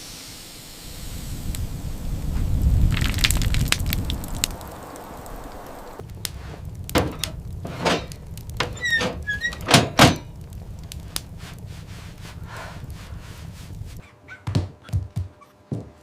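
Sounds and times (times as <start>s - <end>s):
knocks and thuds: 6.9s - 10.4s, 14.4s - 16.0s
short squeak: 8.6s - 10.2s.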